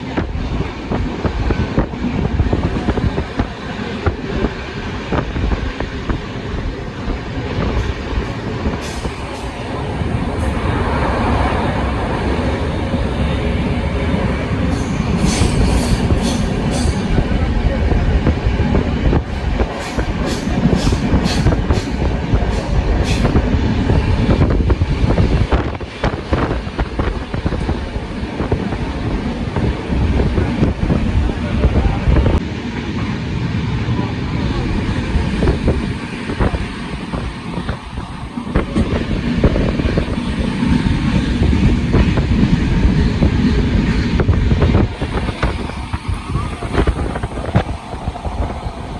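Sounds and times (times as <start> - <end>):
train rumbling: 0.0 - 48.9
sharp rail clacks: 5.1 - 10.7, 14.3 - 17.5, 19.2 - 23.8.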